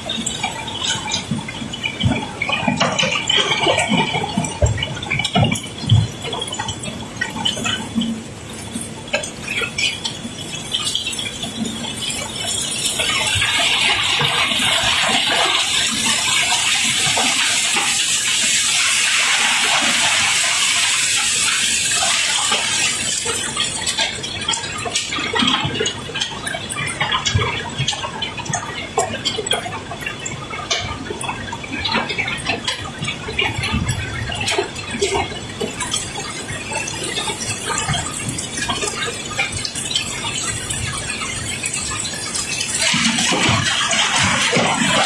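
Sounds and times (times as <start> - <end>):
rocks pouring and sliding: 12.5 - 23.7.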